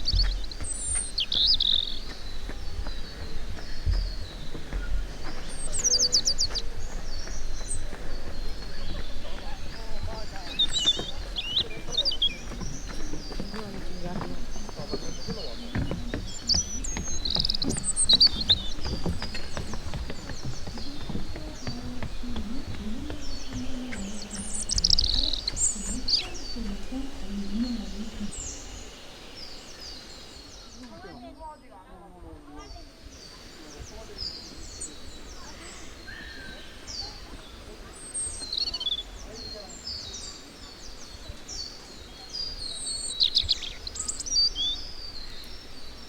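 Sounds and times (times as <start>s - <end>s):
low wavering hum: 0.0s - 30.8s
songbirds chirping: 0.0s - 46.0s.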